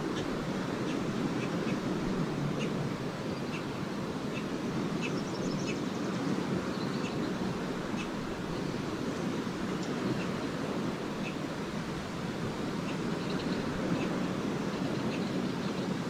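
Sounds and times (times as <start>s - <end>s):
small waves washing onto beach: 0.0s - 16.0s
swallows twittering: 12.8s - 15.9s.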